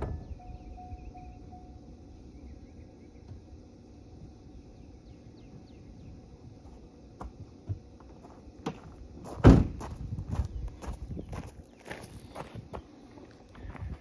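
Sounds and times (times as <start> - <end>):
footsteps: 6.6 - 14.0
car door shutting: 9.4 - 9.8.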